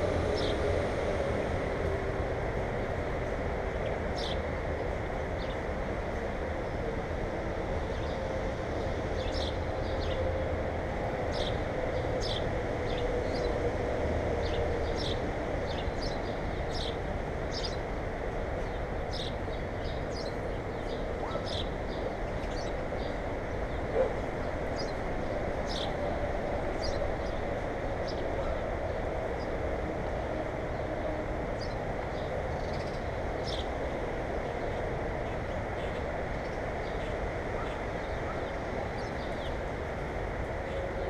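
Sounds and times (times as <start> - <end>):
birds chirping: 14.4 - 17.8, 18.6 - 26.0, 31.6 - 33.8.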